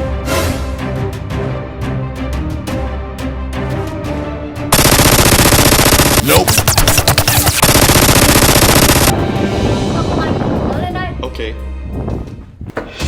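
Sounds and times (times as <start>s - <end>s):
background music: 0.0s - 4.7s, 9.1s - 12.1s
machine-gun fire: 4.7s - 9.1s.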